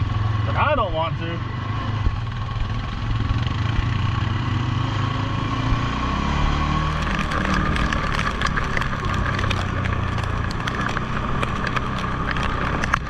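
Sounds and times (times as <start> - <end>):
atv engine running: 0.0 - 13.0
clicks and light knocks: 6.9 - 13.0.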